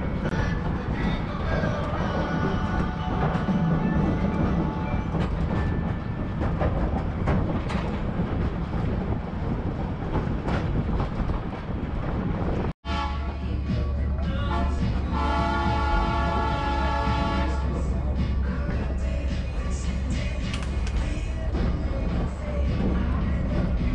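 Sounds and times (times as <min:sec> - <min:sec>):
train car rumbling: 0:00.0 - 0:23.9
locomotive horn chord: 0:12.8 - 0:13.5, 0:14.4 - 0:17.9.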